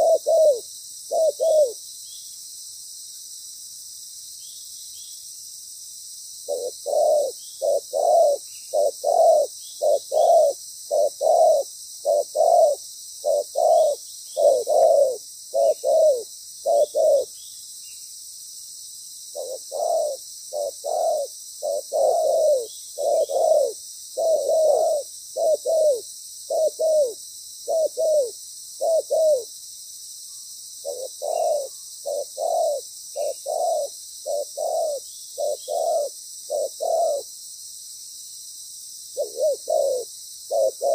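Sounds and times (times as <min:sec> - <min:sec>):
dove cooing: 0:00.0 - 0:01.8, 0:06.4 - 0:17.3, 0:19.3 - 0:29.5, 0:30.8 - 0:37.3, 0:39.2 - 0:40.9.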